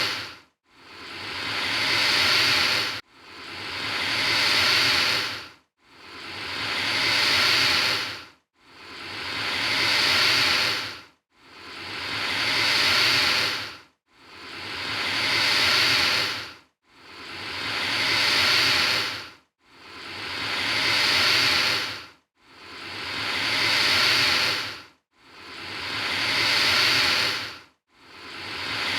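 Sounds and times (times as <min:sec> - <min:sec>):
alligator hissing: 0:00.0 - 0:00.3, 0:00.9 - 0:03.0, 0:03.6 - 0:05.4, 0:06.1 - 0:08.2, 0:08.8 - 0:11.0, 0:11.6 - 0:13.7, 0:14.4 - 0:16.5, 0:17.2 - 0:19.2, 0:20.0 - 0:22.0, 0:22.7 - 0:24.8, 0:25.4 - 0:27.5, 0:28.2 - 0:28.9.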